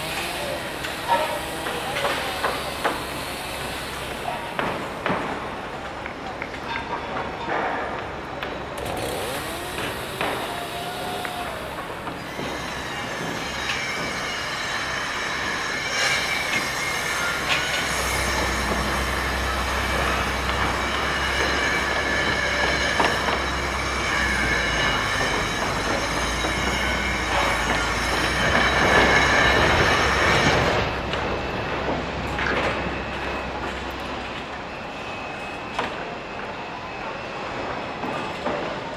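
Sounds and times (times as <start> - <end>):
metal-on-metal squeal: 9.0 - 33.9.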